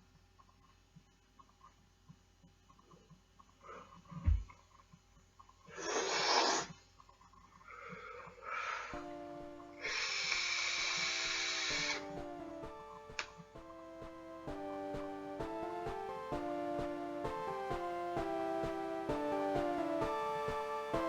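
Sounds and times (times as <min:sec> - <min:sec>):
background music: 0:08.9 - 0:21.0.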